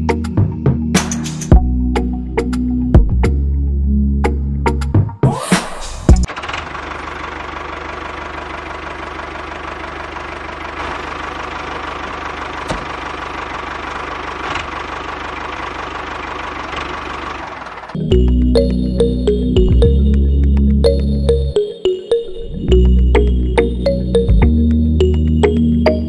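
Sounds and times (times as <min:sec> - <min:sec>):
music: 0:00.0 - 0:06.3, 0:18.0 - 0:26.0
diesel engine chugging: 0:06.1 - 0:26.0.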